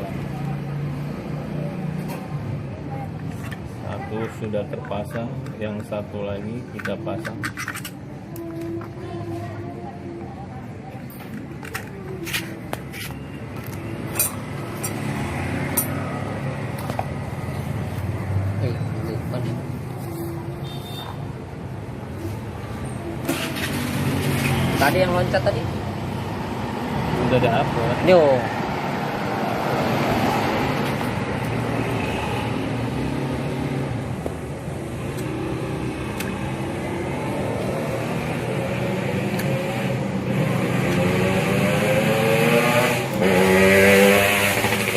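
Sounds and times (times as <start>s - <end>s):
small metal parts clicking: 6.7s - 8.0s.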